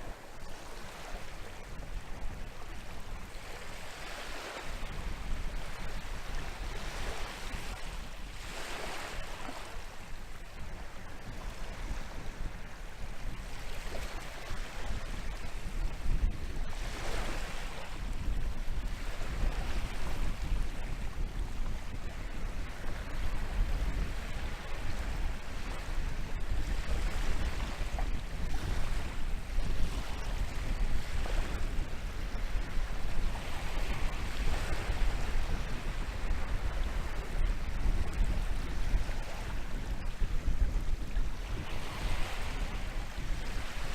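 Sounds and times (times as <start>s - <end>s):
wind buffeting the microphone: 0.0s - 43.9s
surf breaking on a beach: 10.9s - 43.9s.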